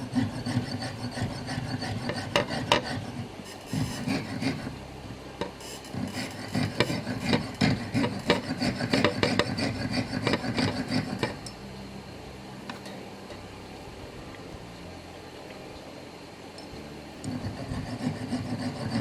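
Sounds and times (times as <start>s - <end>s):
saw rasping on metal: 0.0s - 4.8s, 5.4s - 11.5s, 17.2s - 19.0s.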